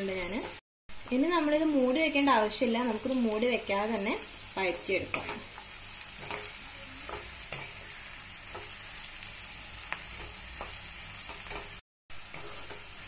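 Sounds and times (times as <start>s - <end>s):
food sizzling in oil: 0.0s - 13.0s
spatula tapping a pan: 6.2s - 7.8s, 8.5s - 8.8s, 9.9s - 11.8s
spatula scraping a pan: 10.1s - 13.0s.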